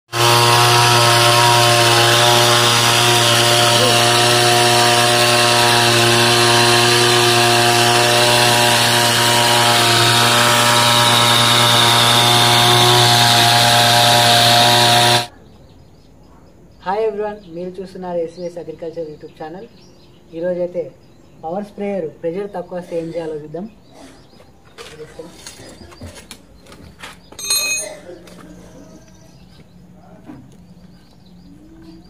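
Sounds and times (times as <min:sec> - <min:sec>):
power sprayer engine buzzing: 0:00.1 - 0:15.3.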